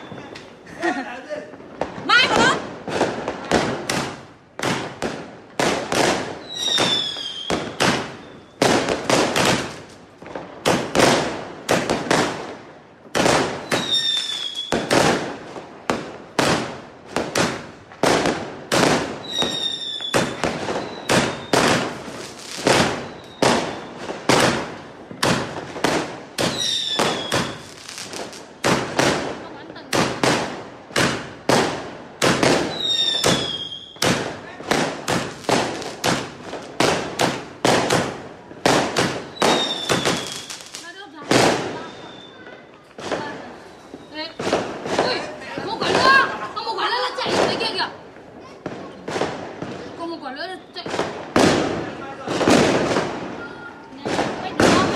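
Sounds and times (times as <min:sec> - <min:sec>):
firework whistle falling: 0:00.0 - 0:00.5, 0:13.6 - 0:14.9, 0:19.2 - 0:21.6, 0:41.8 - 0:42.6
fireworks bangs: 0:00.0 - 0:54.9.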